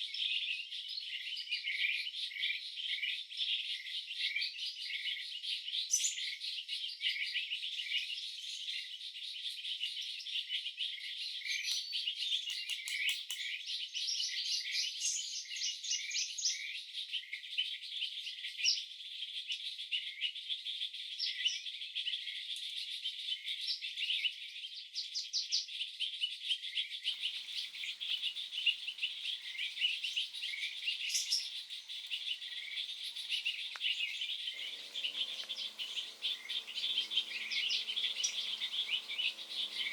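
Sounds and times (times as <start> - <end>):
birds and insects chirping: 11.4 - 15.5, 27.0 - 39.9.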